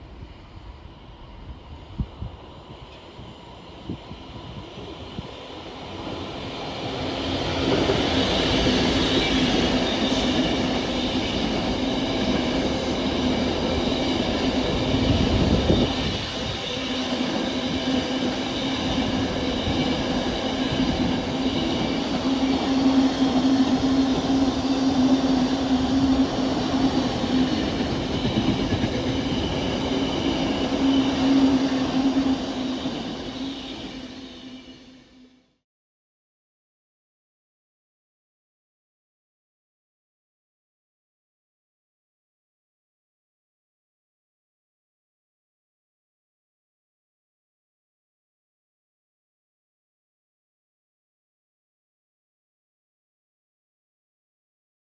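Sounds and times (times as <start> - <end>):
train passing: 0.0 - 35.4.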